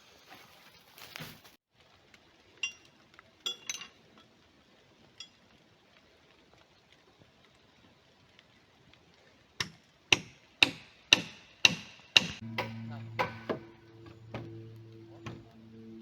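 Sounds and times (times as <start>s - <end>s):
hammer blows with metallic ring: 10.2s - 14.6s
steady low multi-tone hum: 10.7s - 16.0s.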